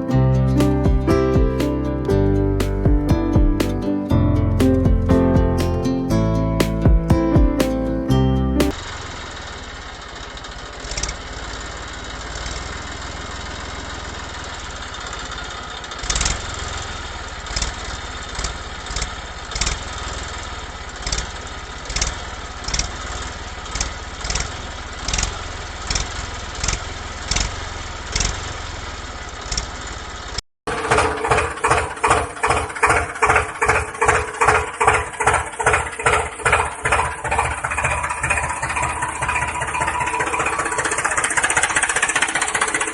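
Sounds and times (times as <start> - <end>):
small motor running: 30.8 - 42.9.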